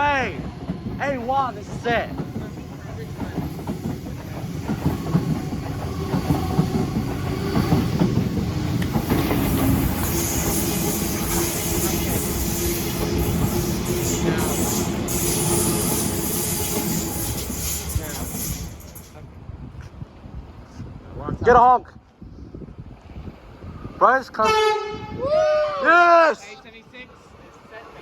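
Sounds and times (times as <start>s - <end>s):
train wheels clattering: 0.0s - 19.2s
train whine: 0.0s - 19.3s
high hiss: 1.1s - 19.2s.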